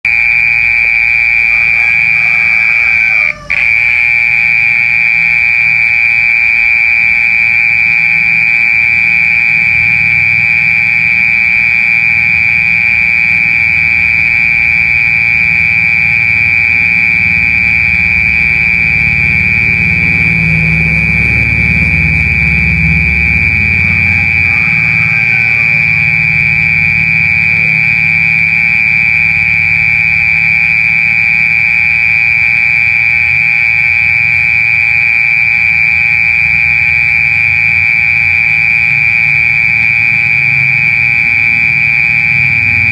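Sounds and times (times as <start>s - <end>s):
mole cricket trilling: 0.1s - 31.4s.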